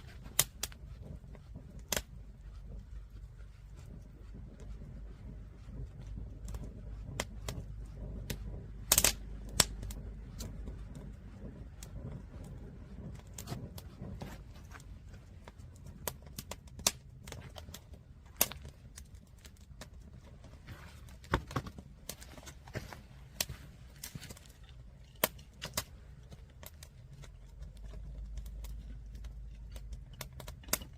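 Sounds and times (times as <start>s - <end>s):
wood fire crackling and popping: 0.0s - 30.9s.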